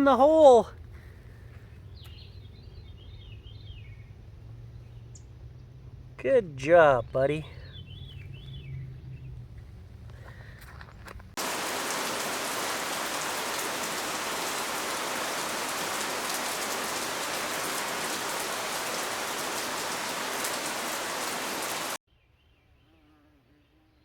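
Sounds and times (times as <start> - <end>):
heavy rain pouring: 11.4 - 22.0.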